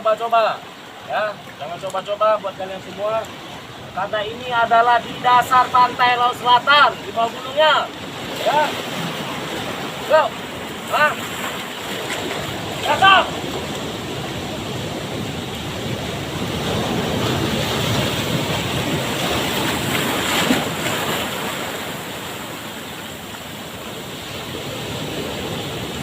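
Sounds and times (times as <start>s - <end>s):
ocean wave washing in: 7.8s - 26.0s.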